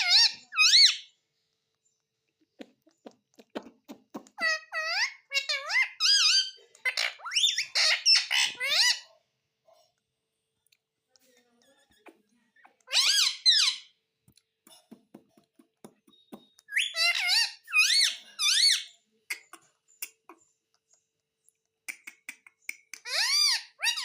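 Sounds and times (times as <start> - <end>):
parrot squawking: 0.0 - 1.1, 4.2 - 9.1, 12.0 - 14.0, 16.7 - 19.5, 23.0 - 24.0
faint small clicks and taps: 14.2 - 16.7, 19.3 - 23.0.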